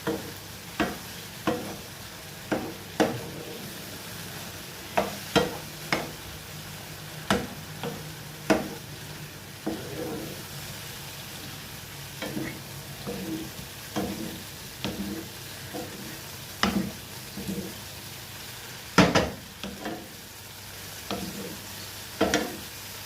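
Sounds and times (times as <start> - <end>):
utensil knocking and scraping pan: 0.0 - 1.9, 2.5 - 3.7, 5.0 - 6.2, 7.3 - 8.9, 9.6 - 10.4, 12.2 - 17.8, 19.0 - 20.1, 21.1 - 21.6, 22.2 - 22.6
mushrooms sizzling in oil: 0.0 - 23.0.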